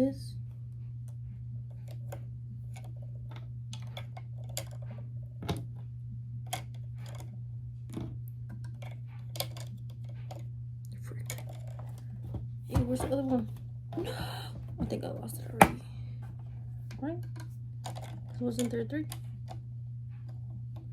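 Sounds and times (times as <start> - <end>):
plastic pieces clicking and tapping: 17.2 - 19.6.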